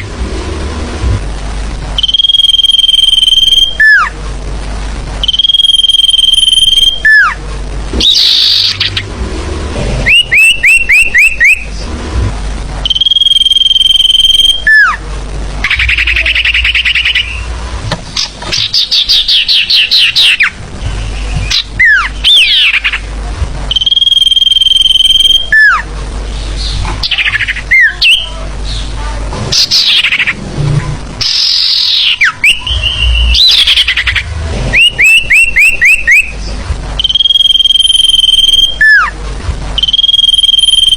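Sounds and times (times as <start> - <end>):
forest bird calls: 10.0 - 11.7, 15.6 - 17.6, 18.2 - 23.1, 29.5 - 30.4, 31.2 - 39.1.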